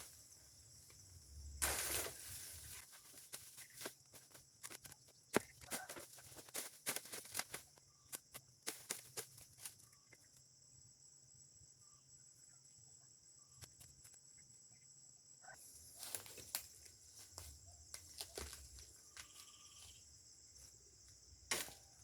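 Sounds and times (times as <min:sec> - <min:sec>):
clicks and rustles: 0:01.6 - 0:10.2
high-pitched insect drone: 0:18.4 - 0:21.1.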